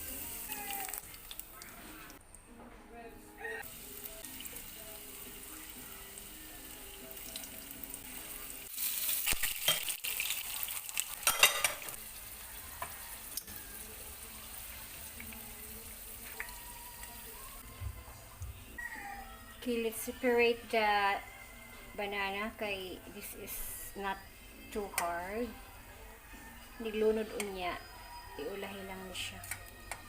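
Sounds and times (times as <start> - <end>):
vegetables sizzling in hot oil: 0.0 - 1.5, 3.6 - 17.3.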